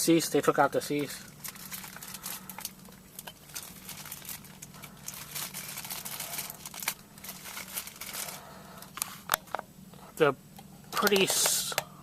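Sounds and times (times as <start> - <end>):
packaging crinkling: 1.0 - 9.3.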